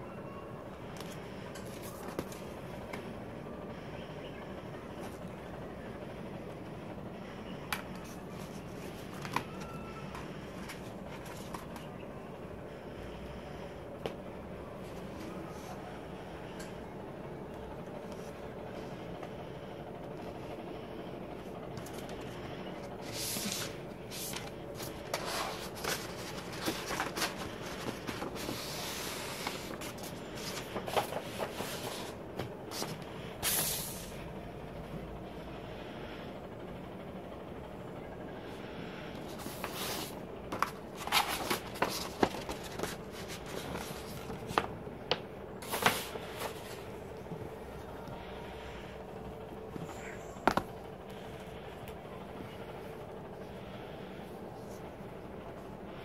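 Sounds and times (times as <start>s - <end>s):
low room hum: 0.0s - 56.0s
album package being handled: 1.0s - 2.5s, 7.7s - 11.9s, 21.8s - 33.9s, 39.2s - 46.9s.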